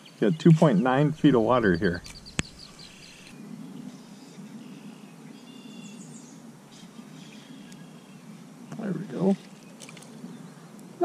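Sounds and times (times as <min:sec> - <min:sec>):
faint bird chirps: 0:00.0 - 0:08.2.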